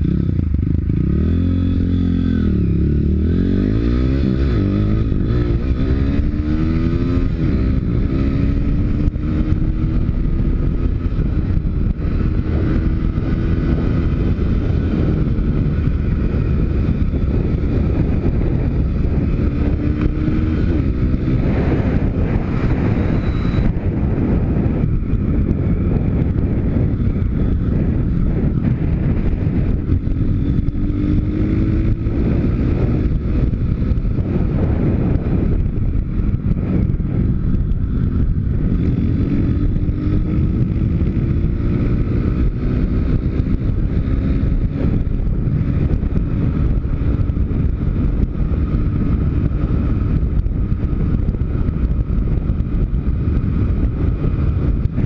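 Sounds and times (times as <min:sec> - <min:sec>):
pit bike engine accelerating: 0:00.0 - 0:55.0
wind noise on microphone: 0:00.0 - 0:55.0.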